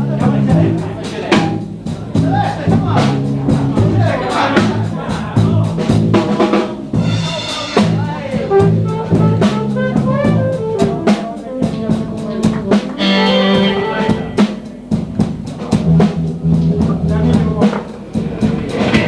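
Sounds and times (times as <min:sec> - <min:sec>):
bass line: 0:00.0 - 0:17.6
drum kit beat: 0:00.0 - 0:19.0
melodic lead line: 0:10.4 - 0:15.4.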